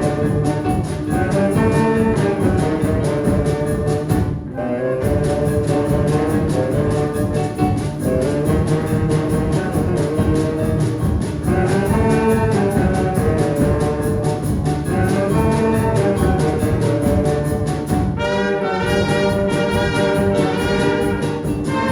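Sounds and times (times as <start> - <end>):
brass band playing: 0.0 - 21.9.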